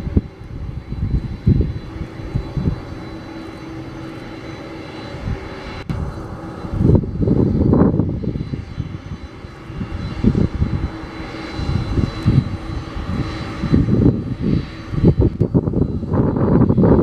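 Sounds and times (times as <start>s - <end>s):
faint steady whine: 0.0s - 17.0s
jet engines rumbling: 0.0s - 17.0s.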